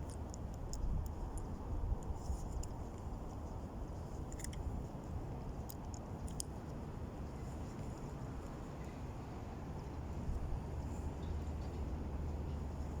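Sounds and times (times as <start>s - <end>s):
small clicks of handling: 4.3s - 4.7s.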